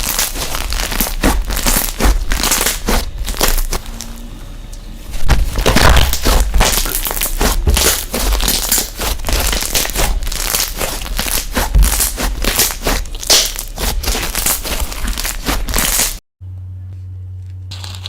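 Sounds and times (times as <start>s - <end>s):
slime crackling and popping: 0.0s - 4.1s, 5.2s - 16.2s, 17.7s - 18.0s.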